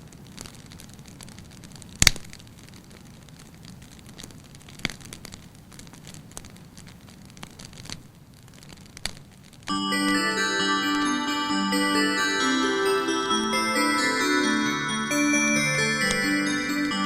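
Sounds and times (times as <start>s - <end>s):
low steady fire hiss: 0.0s - 9.7s
wood fire crackling: 0.2s - 9.7s.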